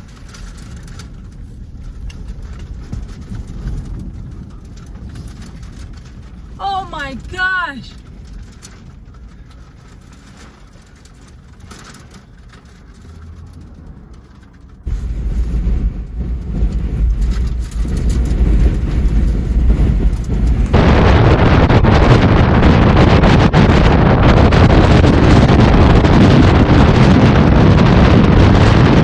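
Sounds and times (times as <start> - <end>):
wind buffeting microphone: 0.0 - 6.6, 14.8 - 29.0
faint rumble: 14.2 - 22.7.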